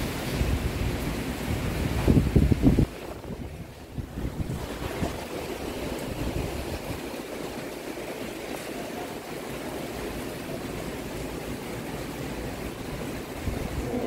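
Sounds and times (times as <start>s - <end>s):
storm wind rushing: 0.0s - 8.6s, 12.1s - 14.0s
water rushing: 0.0s - 14.0s.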